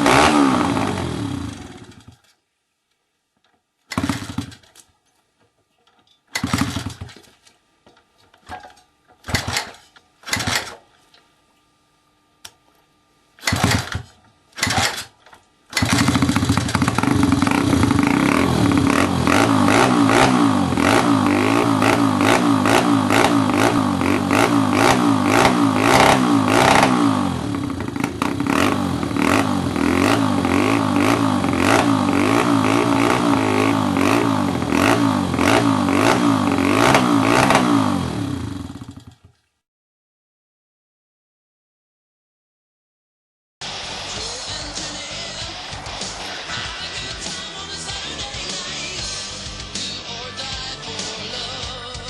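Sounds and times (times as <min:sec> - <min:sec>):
motorcycle engine running: 0:00.0 - 0:02.2, 0:03.9 - 0:04.6, 0:06.4 - 0:07.2, 0:15.8 - 0:39.3.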